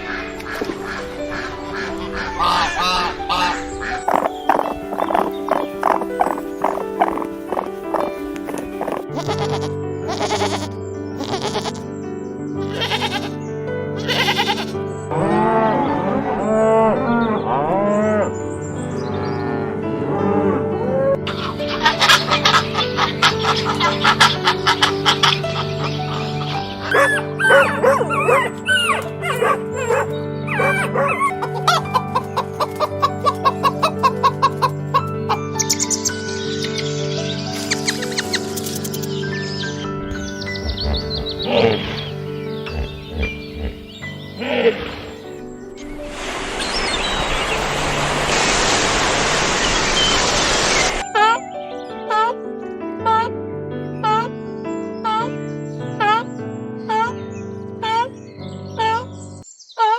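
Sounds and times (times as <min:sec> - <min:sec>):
background music: 0:00.0 - 0:59.4
chicken clucking: 0:00.4 - 0:09.0, 0:21.3 - 0:35.4
sheep bleating: 0:08.8 - 0:11.9, 0:12.6 - 0:13.4, 0:14.0 - 0:15.5, 0:40.6 - 0:42.1.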